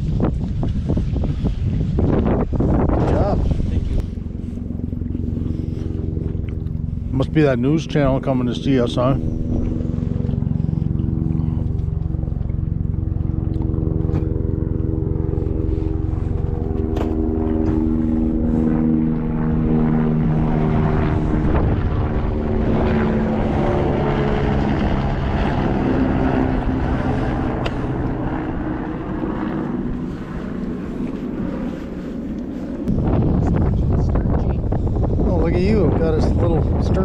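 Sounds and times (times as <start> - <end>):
passing engine droning: 0.0 - 37.0.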